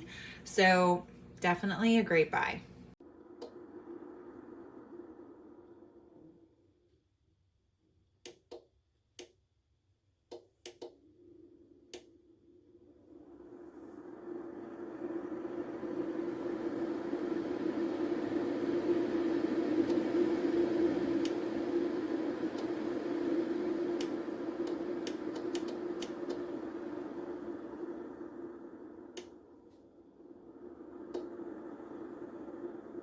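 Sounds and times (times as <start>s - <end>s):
coffee maker pump hum: 10.3s - 33.0s
clicks and sputters: 19.8s - 27.3s.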